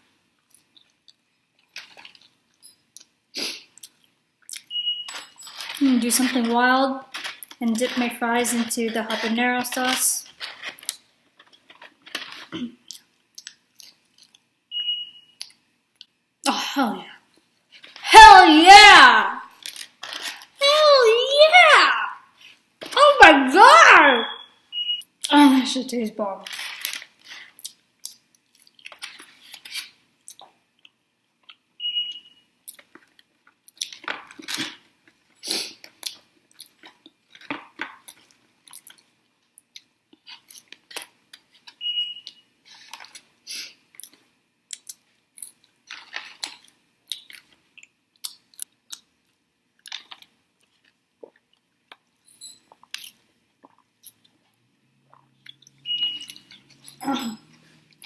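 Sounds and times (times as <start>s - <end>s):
wet chewing and crunching: 35.8s - 41.5s, 44.0s - 52.0s, 52.7s - 55.7s.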